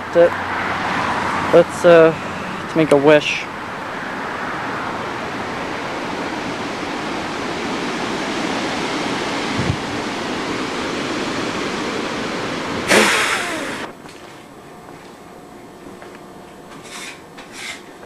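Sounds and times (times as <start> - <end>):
steady rushing noise: 0.2 - 15.1
short burst of rushing noise: 12.8 - 13.9.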